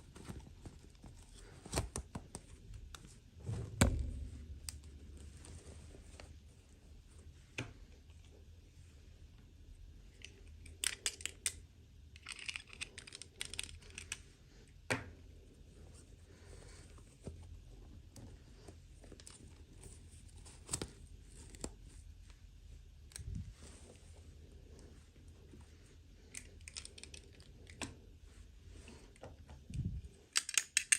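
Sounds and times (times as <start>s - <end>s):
plastic pieces clicking: 12.2s - 14.2s, 30.3s - 30.9s.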